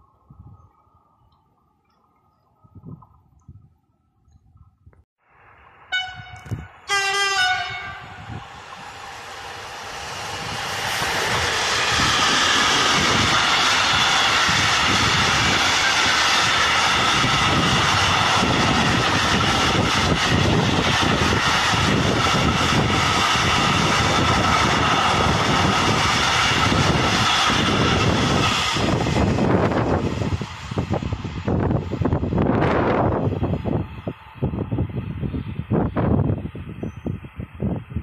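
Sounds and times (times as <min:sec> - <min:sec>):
diesel locomotive engine: 0:00.0 - 0:38.0
wagons rumbling on rails: 0:05.5 - 0:37.7.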